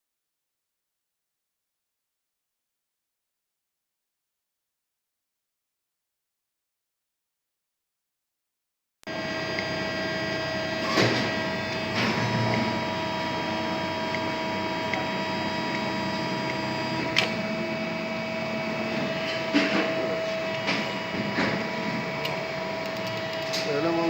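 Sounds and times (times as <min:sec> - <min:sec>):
geared motor whining: 0:09.1 - 0:24.0
sharp clicks: 0:22.2 - 0:23.6.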